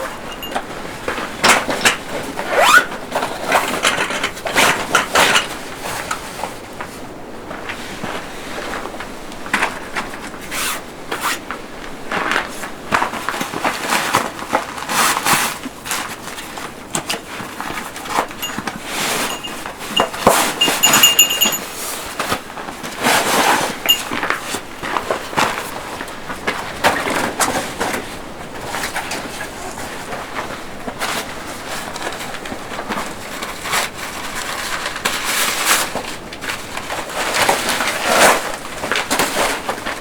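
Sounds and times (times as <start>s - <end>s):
things being handled: 0.0s - 2.8s, 18.0s - 22.3s, 23.9s - 24.4s.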